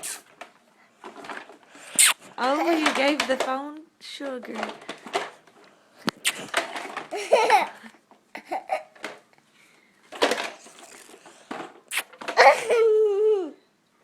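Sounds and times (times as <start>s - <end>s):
toddler laughing: 7.1s - 9.0s, 12.4s - 13.5s.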